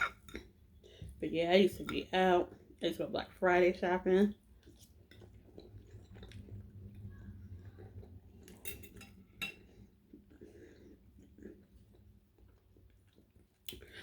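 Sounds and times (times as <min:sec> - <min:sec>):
low steady hum: 0:00.0 - 0:14.0
chewing and mouth sounds: 0:04.3 - 0:08.6, 0:09.2 - 0:14.0.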